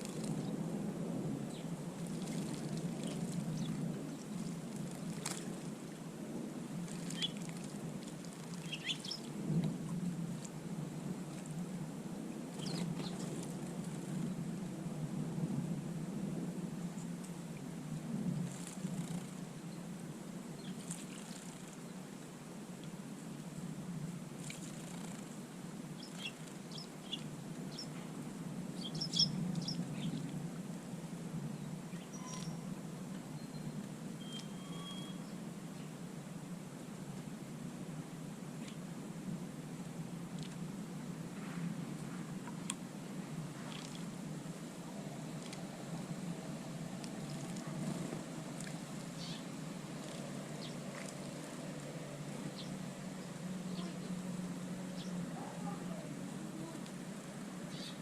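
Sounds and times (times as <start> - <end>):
steady low rumble: 0.0 - 32.1
small birds chirping: 1.5 - 5.5, 6.9 - 7.7, 8.3 - 9.3, 12.5 - 14.3, 20.6 - 21.9, 26.0 - 28.0, 28.8 - 30.3, 31.5 - 32.7, 49.1 - 51.1, 52.4 - 54.2, 54.9 - 56.8, 57.7 - 58.0.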